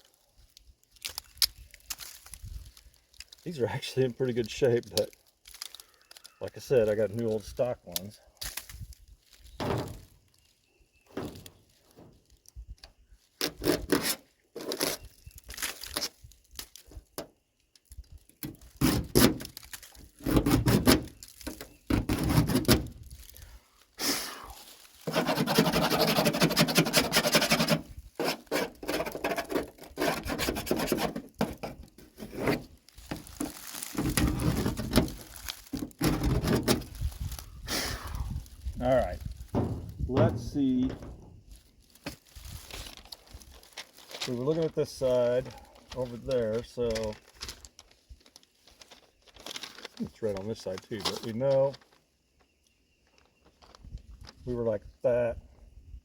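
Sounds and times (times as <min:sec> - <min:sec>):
steady scraping rub: 0:25.0 - 0:32.7
clicks and knocks of car parts: 0:39.5 - 0:41.3.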